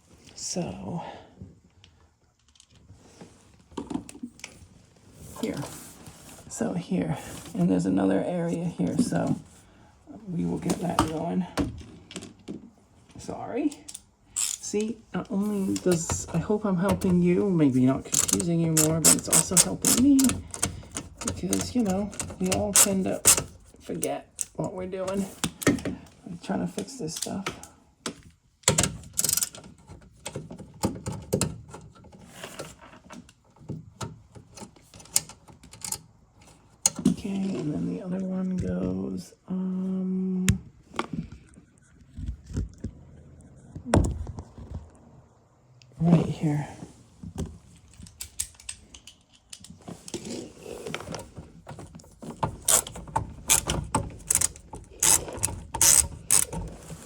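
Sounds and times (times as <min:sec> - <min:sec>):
plastic and metal parts clicking: 0:13.8 - 0:14.9, 0:18.0 - 0:25.9, 0:28.1 - 0:37.1, 0:51.0 - 0:57.0
screwdriver ratcheting: 0:13.9 - 0:14.9, 0:18.0 - 0:23.6, 0:52.4 - 0:56.8.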